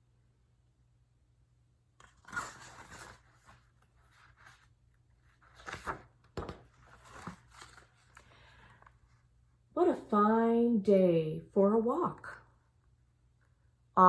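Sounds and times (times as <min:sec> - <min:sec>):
book pages rustling: 0:02.0 - 0:09.2.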